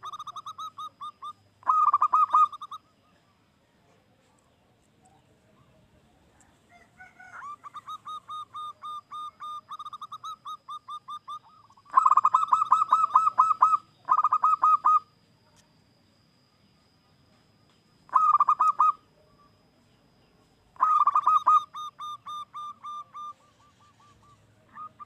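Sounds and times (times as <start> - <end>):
dove cooing rapid clipped notes: 0.0 - 2.8, 7.1 - 15.1, 18.1 - 19.0, 20.8 - 25.0.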